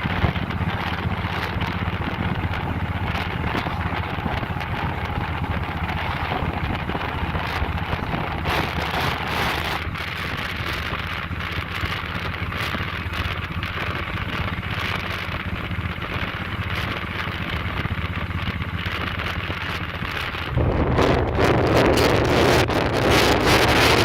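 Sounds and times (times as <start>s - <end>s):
motorcycle engine rumble: 0.0s - 24.0s
wind rushing: 20.2s - 24.0s.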